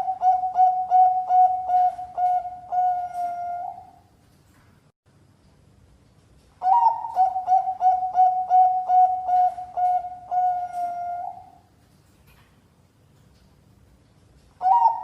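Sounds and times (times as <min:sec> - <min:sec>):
dove cooing: 0:00.0 - 0:04.0, 0:06.6 - 0:11.7, 0:14.6 - 0:15.0.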